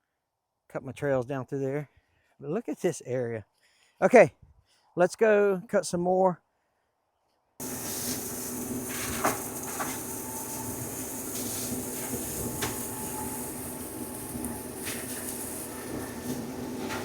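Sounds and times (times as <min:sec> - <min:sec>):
tractor flail mower running: 0:07.6 - 0:17.0.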